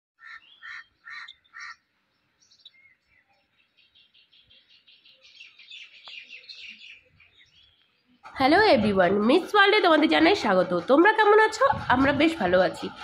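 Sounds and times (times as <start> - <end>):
short loud bird calls: 0.2 - 7.9
small birds chirping and twittering: 0.2 - 9.4.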